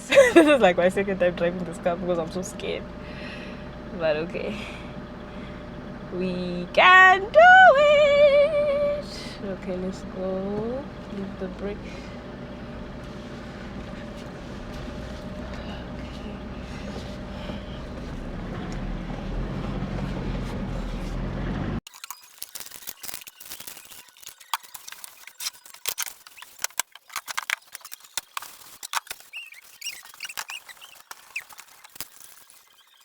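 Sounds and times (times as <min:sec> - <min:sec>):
car engine pulling away: 0:00.1 - 0:21.8.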